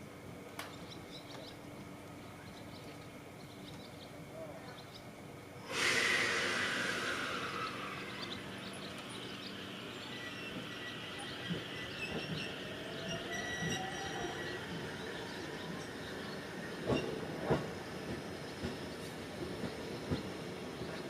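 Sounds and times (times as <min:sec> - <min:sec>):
low whine rising in pitch: 0:05.7 - 0:14.5
high squeal: 0:05.7 - 0:17.2
electric train running: 0:05.7 - 0:21.0.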